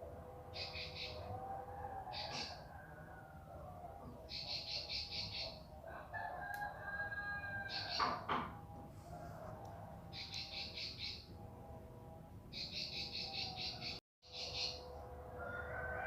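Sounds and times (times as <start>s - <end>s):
bird singing high chipping notes: 0.5s - 1.2s, 10.1s - 11.4s, 12.5s - 14.9s
lower drawn-out bird calls: 0.5s - 2.9s, 10.1s - 11.3s, 12.5s - 14.9s.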